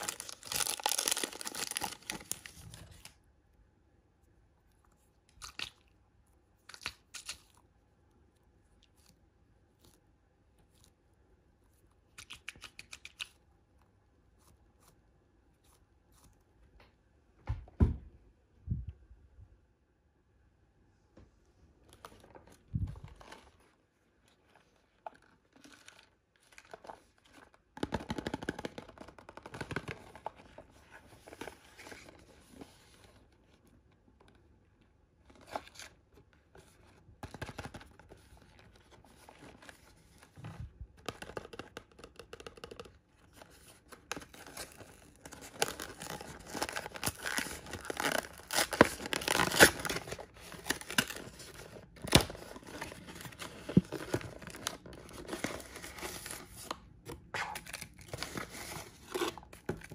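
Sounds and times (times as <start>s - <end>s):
packaging tearing and crinkling: 0.0s - 3.2s, 44.2s - 56.7s.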